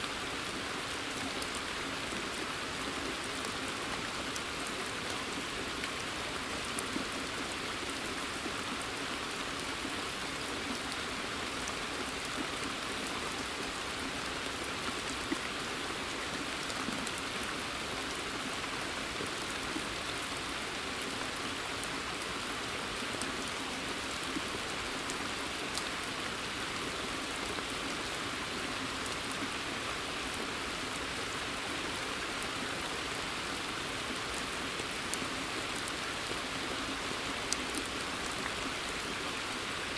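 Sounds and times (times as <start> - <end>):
rain on water and foliage: 0.0 - 39.9.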